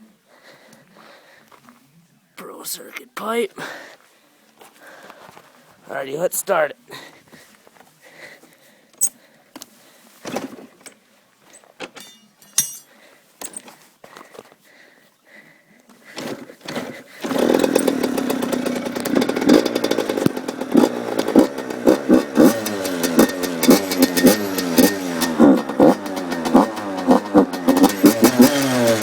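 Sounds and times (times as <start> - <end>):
kick-start clunks and knocks: 16.2 - 21.8
two-stroke engine revving: 16.2 - 29.0.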